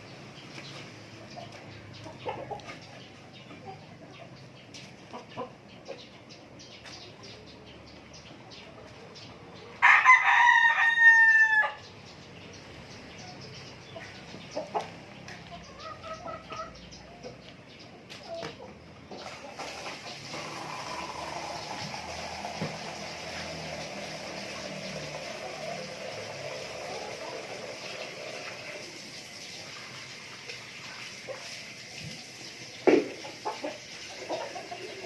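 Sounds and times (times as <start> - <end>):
chickens clucking: 0.0 - 35.0
rooster crowing: 9.8 - 11.8.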